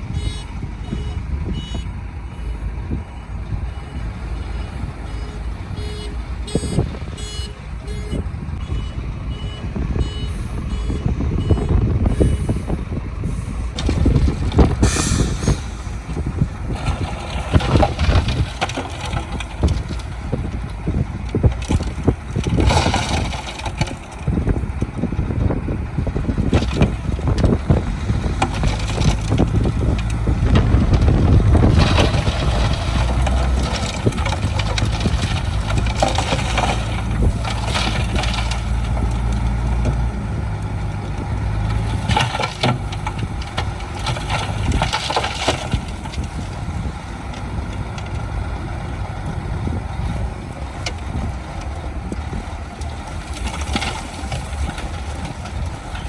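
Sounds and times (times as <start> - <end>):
heavy diesel engine running: 0.0 - 56.0
scraping of soil: 13.3 - 24.6, 26.2 - 48.0
metal clanks: 13.7 - 20.5.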